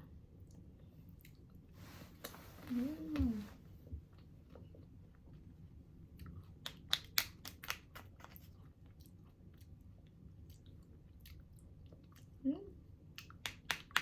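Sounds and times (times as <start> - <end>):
person chewing crunchy food: 6.1 - 12.3.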